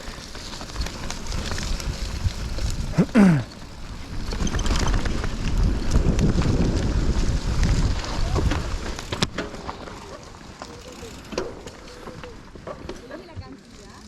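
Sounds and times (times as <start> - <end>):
wind buffeting microphone: 0.0 - 9.9
bike rattles and clicks: 0.0 - 14.0
tyres rumbling over dirt: 0.0 - 14.0.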